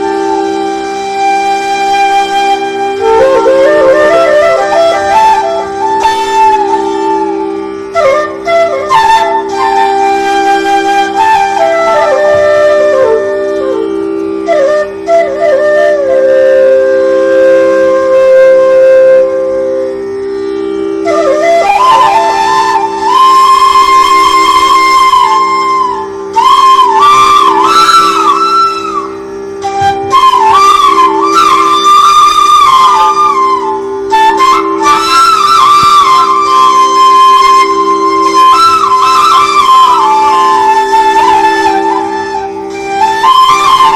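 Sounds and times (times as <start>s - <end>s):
flute melody: 0.0s - 43.9s
steady drone: 0.0s - 43.9s.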